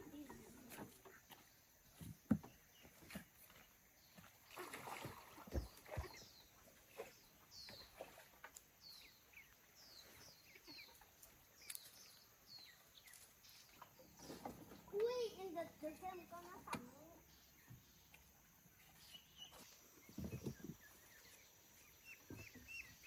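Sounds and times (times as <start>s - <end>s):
bird chirping: 5.8s - 23.0s.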